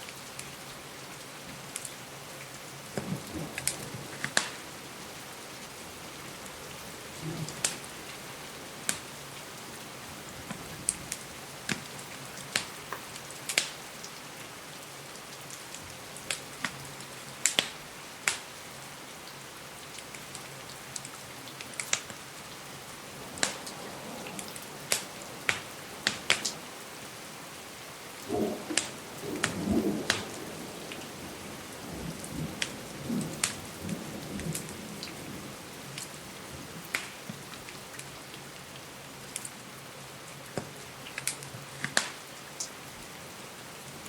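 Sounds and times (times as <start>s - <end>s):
steady rain: 0.0s - 44.0s
wood fire crackling: 1.7s - 14.2s, 15.2s - 16.8s, 17.4s - 18.6s, 19.8s - 35.3s, 35.9s - 38.2s, 40.5s - 42.8s
low rumble of thunder: 2.9s - 5.0s, 6.0s - 9.3s, 22.9s - 26.8s, 28.2s - 36.8s.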